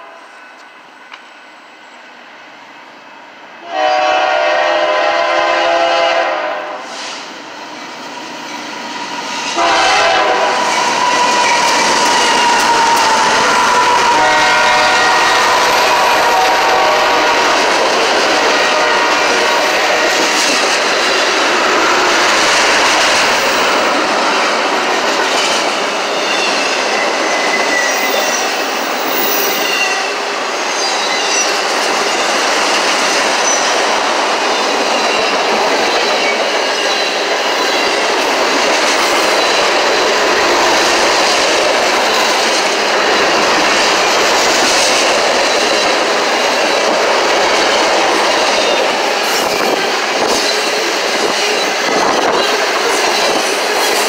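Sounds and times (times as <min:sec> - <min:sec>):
train rolling over rails: 0:03.6 - 0:54.0
wheel squeal: 0:26.2 - 0:30.1.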